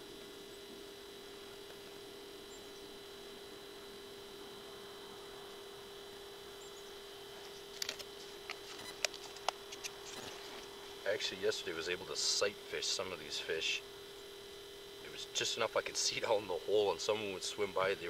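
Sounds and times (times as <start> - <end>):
faint electronic hum: 0.0 - 18.0.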